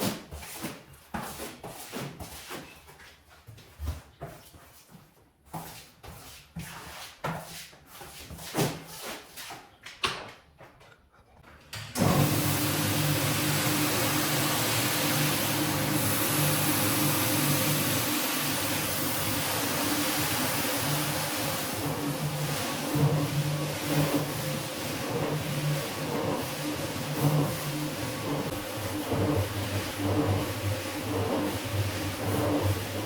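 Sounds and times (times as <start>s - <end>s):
brush scraping wet rug: 0.0s - 2.9s, 5.6s - 9.6s, 12.5s - 33.0s
cleaning machine motor hissing: 12.0s - 33.0s.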